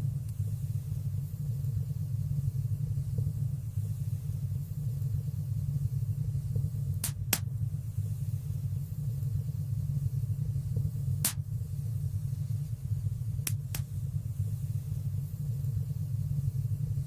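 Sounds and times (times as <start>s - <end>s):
sharp crackling pops: 6.9s - 7.7s, 11.2s - 11.8s, 13.4s - 14.1s.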